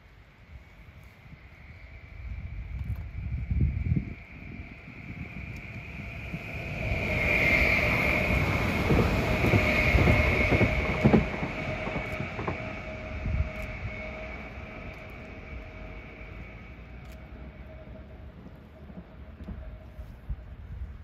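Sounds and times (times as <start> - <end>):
train passing with high whine: 0.0 - 21.0
train wheels clacking: 4.1 - 20.6.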